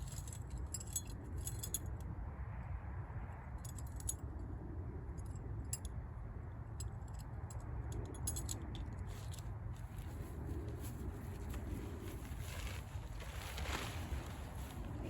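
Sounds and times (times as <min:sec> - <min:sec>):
camping gear clicking and clinking: 0:00.0 - 0:02.0, 0:06.8 - 0:15.0
steady low rumble: 0:00.0 - 0:15.0.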